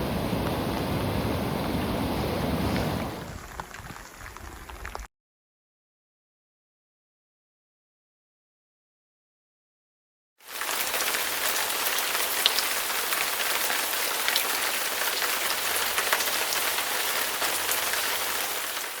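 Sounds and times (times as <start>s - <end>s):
raindrops ticking sharply: 0.0s - 5.1s, 10.5s - 19.0s
steady rain falling: 0.0s - 5.1s, 10.4s - 19.0s.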